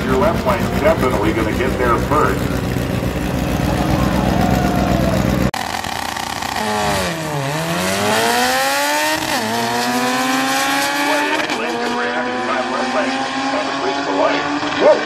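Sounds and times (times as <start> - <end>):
loud low rumble: 0.0 - 5.6
car engine accelerating hard: 0.0 - 15.0.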